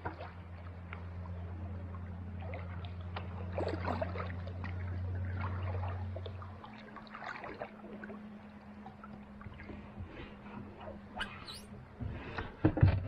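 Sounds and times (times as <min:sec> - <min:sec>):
low steady hum: 0:00.0 - 0:13.0
paddle splashes and drips: 0:00.0 - 0:13.0.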